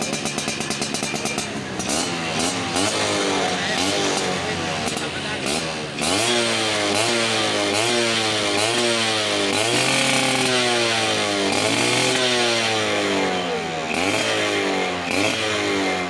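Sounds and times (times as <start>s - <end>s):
two-stroke motorcycle engine revving: 0.0s - 16.0s.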